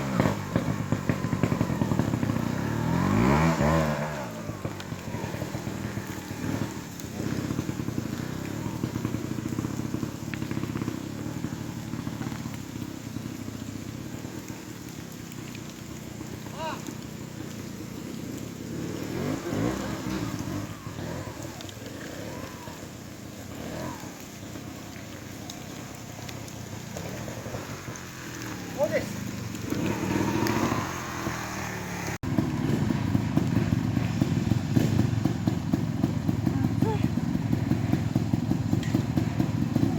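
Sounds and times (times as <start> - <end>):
motorcycle engine at low revs: 0.0 - 39.9
light ticks: 14.4 - 17.6, 21.4 - 22.1, 23.9 - 28.6.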